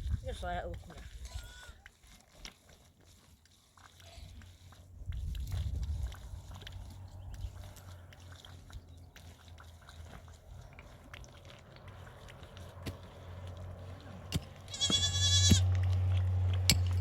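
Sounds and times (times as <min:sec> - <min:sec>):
goat bleating: 0:01.3 - 0:01.8, 0:14.6 - 0:15.8.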